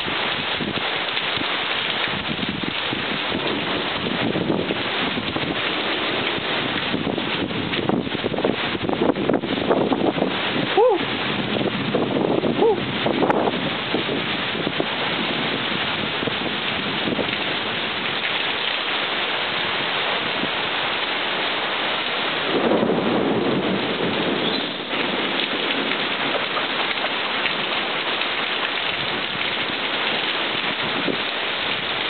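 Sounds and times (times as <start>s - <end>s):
heavy rain hissing: 0.0s - 32.0s.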